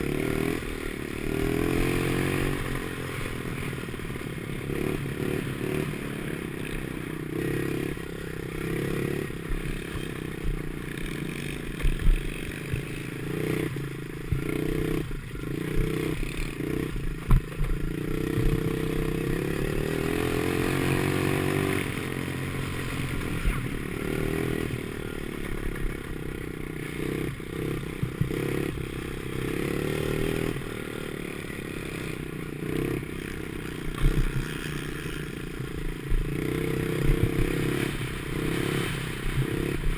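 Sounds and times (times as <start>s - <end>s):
pit bike engine revving: 0.0s - 39.9s
sharp knocks over bumps: 17.2s - 17.8s, 33.9s - 34.6s.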